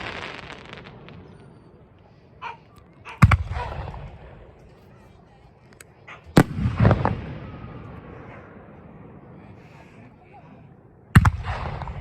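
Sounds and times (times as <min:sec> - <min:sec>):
firework shells booming: 0:00.0 - 0:01.7, 0:03.2 - 0:04.5, 0:06.3 - 0:09.2, 0:11.2 - 0:12.0.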